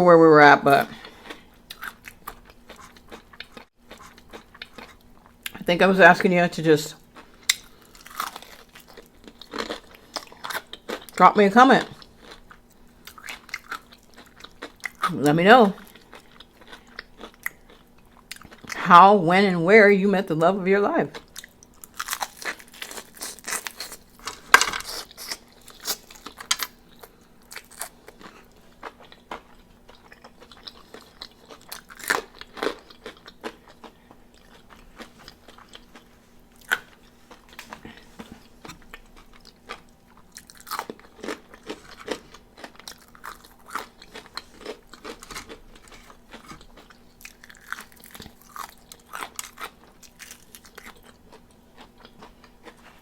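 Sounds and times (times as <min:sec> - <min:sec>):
soft chewing: 0:00.9 - 0:05.6, 0:11.8 - 0:15.1, 0:15.7 - 0:18.8, 0:21.1 - 0:53.0
crunching fried chicken: 0:07.0 - 0:11.2, 0:11.8 - 0:15.2, 0:21.2 - 0:38.0, 0:38.6 - 0:52.8.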